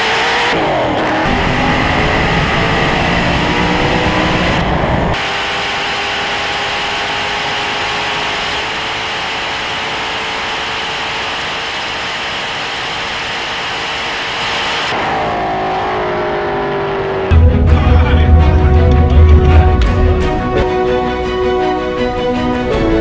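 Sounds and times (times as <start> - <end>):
car engine note: 17.2 - 21.7
wind rushing: 17.3 - 21.2.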